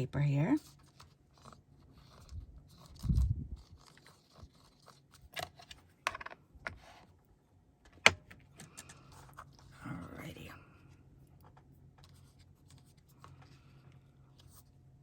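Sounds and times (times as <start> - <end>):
paper crinkling: 0.7 - 5.8.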